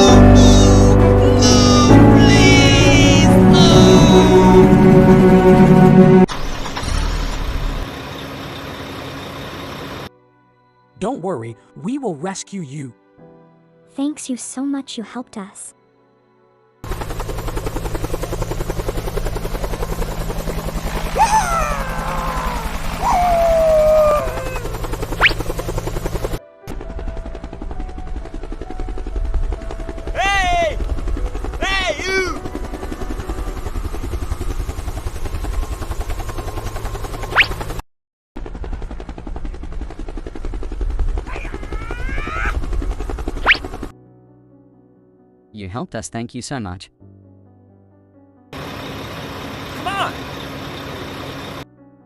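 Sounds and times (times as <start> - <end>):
helicopter rotor chopping: 0.0 - 10.1, 16.8 - 37.8, 38.4 - 43.9, 48.6 - 51.6
rising and falling whine: 1.2 - 6.3, 17.0 - 26.4
rising whistle: 21.2 - 25.4.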